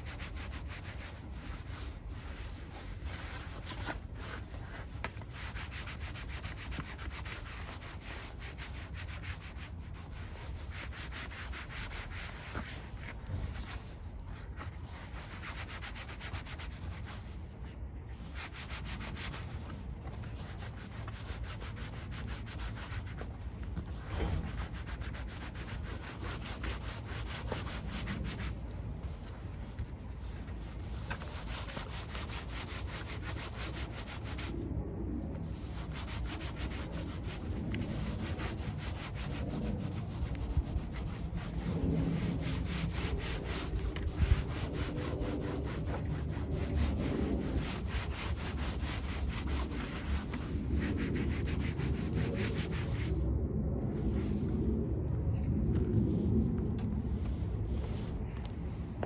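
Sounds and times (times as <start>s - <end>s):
hand scrubbing truck part: 18.1s - 34.4s.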